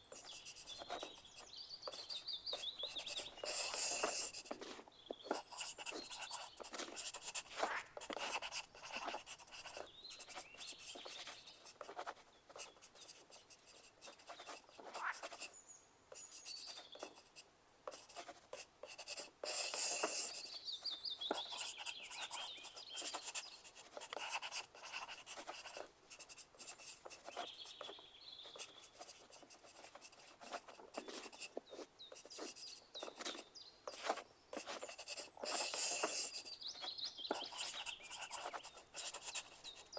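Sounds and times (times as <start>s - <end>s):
pencil scratching on paper: 0.0s - 15.5s, 16.1s - 20.6s, 21.2s - 39.9s.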